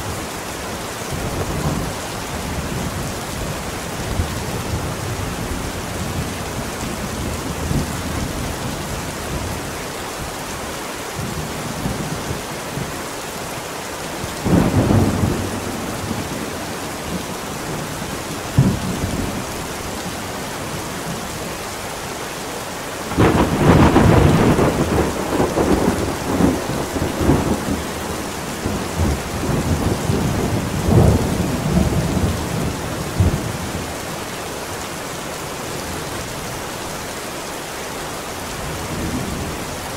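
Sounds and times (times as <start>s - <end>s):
steady rain: 0.0s - 39.9s
thunder rumbling and cracking: 14.4s - 16.6s, 23.1s - 33.8s.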